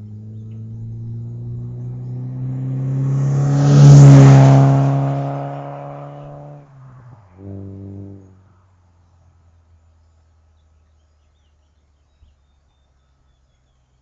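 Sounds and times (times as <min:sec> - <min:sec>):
car exhaust driving past: 0:00.0 - 0:09.4.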